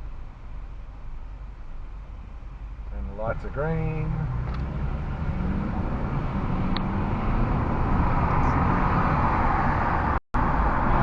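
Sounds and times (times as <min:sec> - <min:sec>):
car engine and road noise inside cabin: 0:00.0 - 0:11.0.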